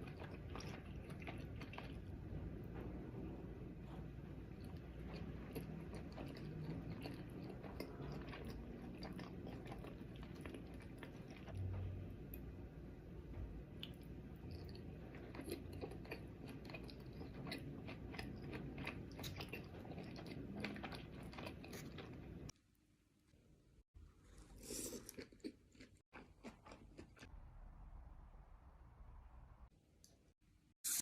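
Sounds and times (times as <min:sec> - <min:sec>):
wet chewing and mouth clicks: 0:00.0 - 0:02.2, 0:04.6 - 0:11.7, 0:13.8 - 0:22.2, 0:24.6 - 0:27.3.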